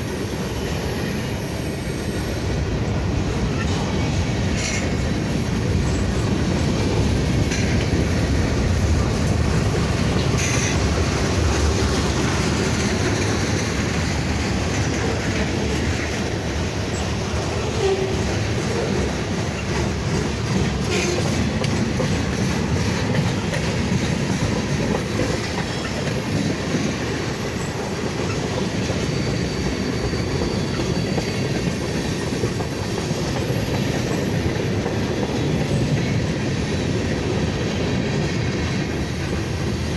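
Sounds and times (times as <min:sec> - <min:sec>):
faint high wheel squeal: 0:00.0 - 0:06.6, 0:25.3 - 0:37.1
freight train wheels rumbling: 0:00.0 - 0:39.9.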